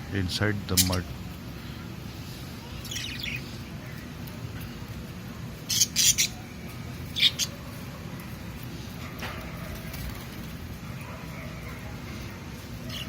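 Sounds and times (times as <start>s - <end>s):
low background hum: 0.0s - 13.0s
budgerigars chirping and squawking: 0.7s - 1.1s, 2.7s - 3.9s, 5.6s - 7.9s, 11.2s - 13.0s.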